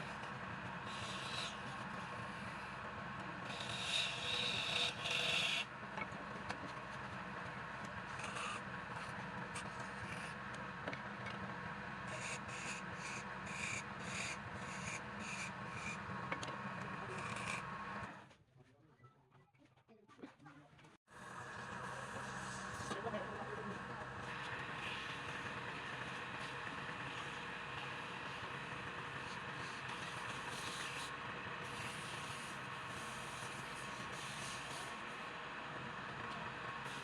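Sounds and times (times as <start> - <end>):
wood lathe motor hum: 0.2 - 2.8, 3.4 - 5.7, 24.2 - 37.0
tool scraping spinning wood: 0.9 - 2.7, 3.5 - 5.7, 8.1 - 10.4, 24.2 - 35.1.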